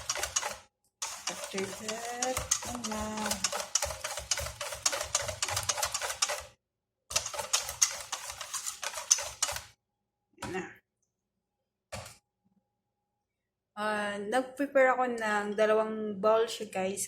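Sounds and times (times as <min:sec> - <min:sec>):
utensil clicking against bowl: 0:00.0 - 0:06.4.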